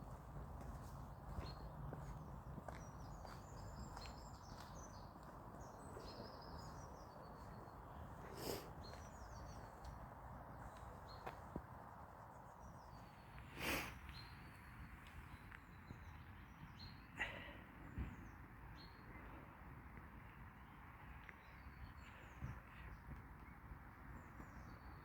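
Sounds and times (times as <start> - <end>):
small birds chirping: 0.0 - 19.5.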